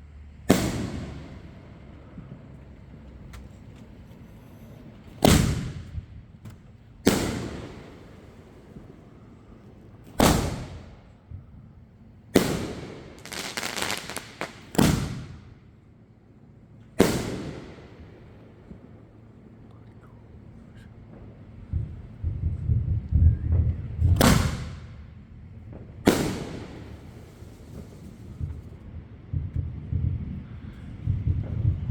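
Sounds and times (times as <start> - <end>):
firework crackling: 0.0 - 6.3, 6.9 - 15.7, 17.0 - 18.9, 23.7 - 31.9
firework shells booming: 0.4 - 15.9, 16.9 - 31.9.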